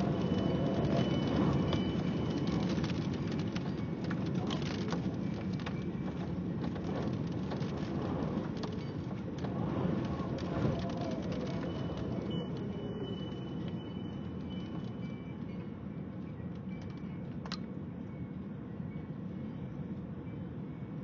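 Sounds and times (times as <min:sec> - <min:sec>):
steady rain falling: 0:00.0 - 0:15.2
raindrops ticking: 0:00.0 - 0:15.5.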